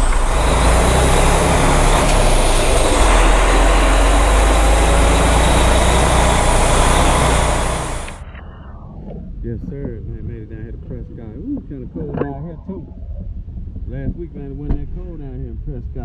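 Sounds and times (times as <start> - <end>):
truck engine and road noise: 0.0 - 8.3.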